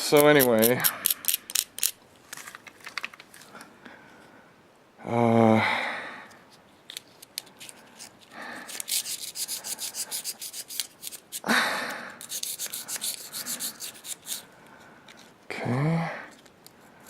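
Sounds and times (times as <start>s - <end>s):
tool scraping carbon off piston: 0.0s - 1.9s.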